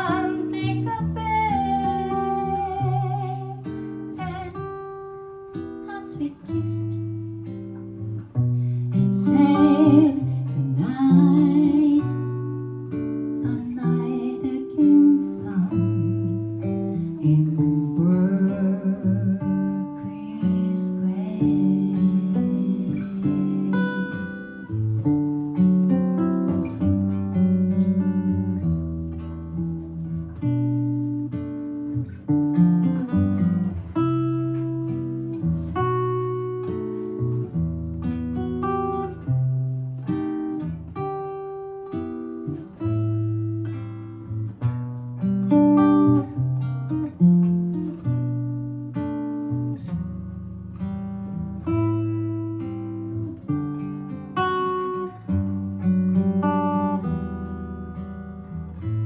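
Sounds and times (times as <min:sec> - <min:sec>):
solo guitar jazz ballad: 0:00.0 - 0:59.0.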